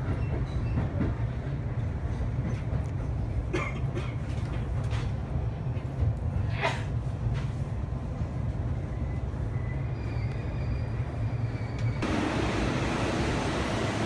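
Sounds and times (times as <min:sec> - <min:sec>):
train running rumble: 0:00.0 - 0:09.9, 0:10.9 - 0:14.0
train doors opening: 0:10.0 - 0:14.0.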